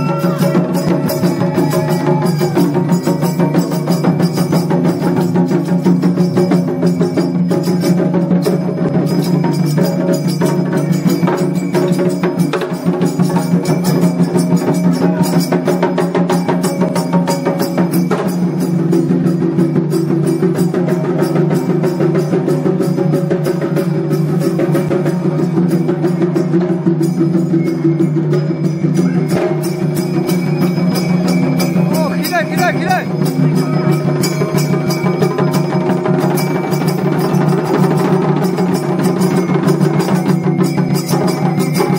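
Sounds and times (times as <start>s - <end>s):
woodblock clacks: 0.0s - 26.7s
procession music with drums: 0.0s - 41.9s.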